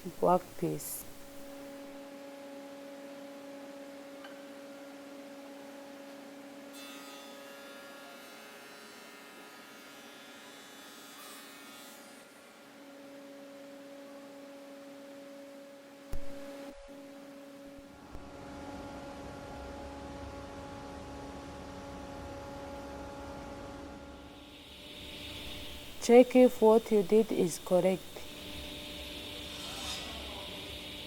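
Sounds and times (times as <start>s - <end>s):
woodworking machine humming: 17.1s - 31.0s
higher cutting whine: 22.4s - 31.0s.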